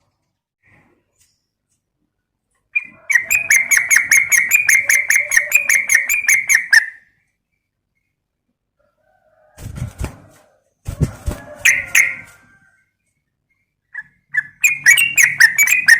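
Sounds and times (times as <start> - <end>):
bird chattering call: 2.8 - 7.0, 14.0 - 15.9.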